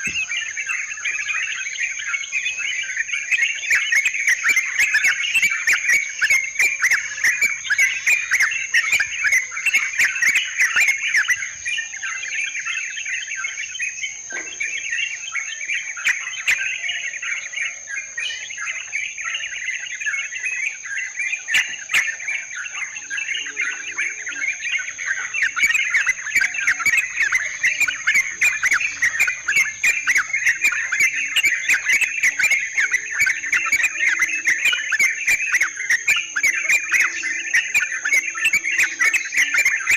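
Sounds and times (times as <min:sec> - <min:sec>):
birds chattering: 0:00.0 - 0:39.9
high insect drone: 0:00.0 - 0:39.9.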